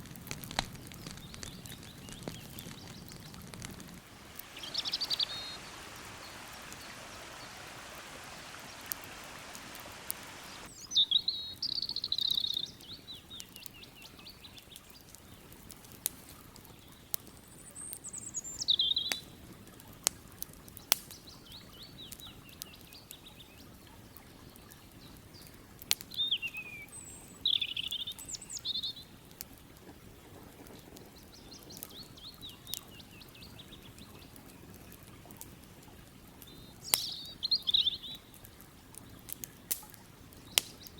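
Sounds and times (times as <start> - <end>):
steady rushing hiss: 0.0 - 10.9
campfire crackling and popping: 0.0 - 40.9
songbirds trilling: 0.8 - 15.5, 16.6 - 19.3, 20.8 - 29.2, 36.4 - 38.4
falling bird whistles: 4.6 - 7.6.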